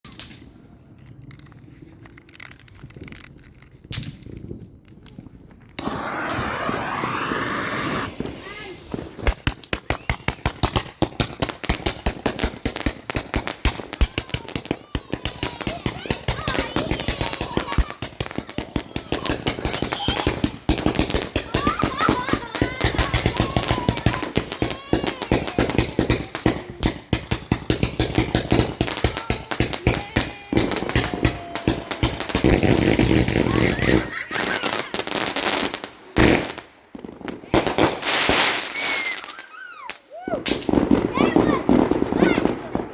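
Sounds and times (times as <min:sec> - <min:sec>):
firework clicks and pop: 0:00.0 - 0:38.0
firework rushing hiss: 0:05.8 - 0:39.5.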